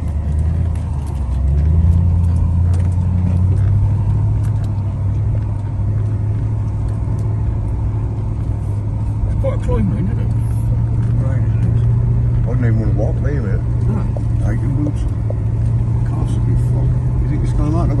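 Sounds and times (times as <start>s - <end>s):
vehicle engine running under load: 0.0s - 18.0s.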